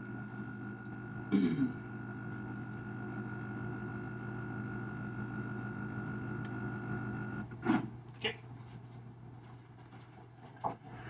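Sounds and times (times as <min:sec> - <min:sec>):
stepper motors whining hum: 0:00.0 - 0:07.5.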